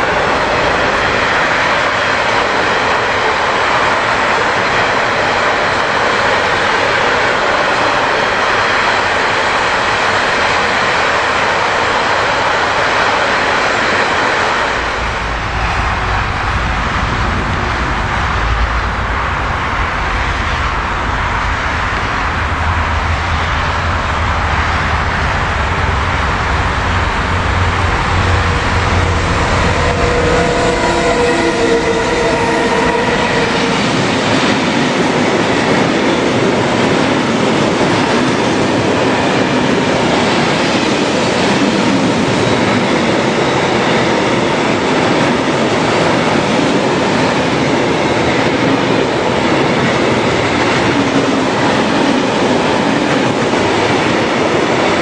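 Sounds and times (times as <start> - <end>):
steel wheels rattling on rails: 0.0 - 55.0
deep steady rumble: 14.8 - 30.5.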